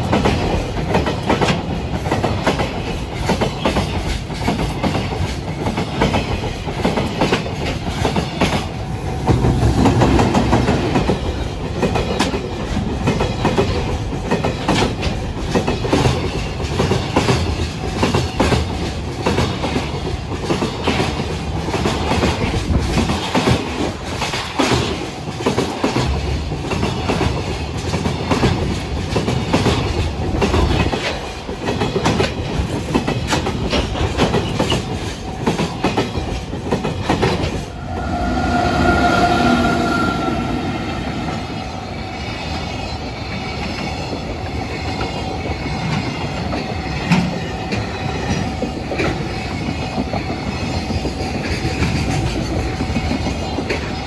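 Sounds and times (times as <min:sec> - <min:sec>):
freight train wheels clattering: 0:00.0 - 0:54.0
train rumble: 0:00.0 - 0:54.0
high ringing tone: 0:37.7 - 0:43.1.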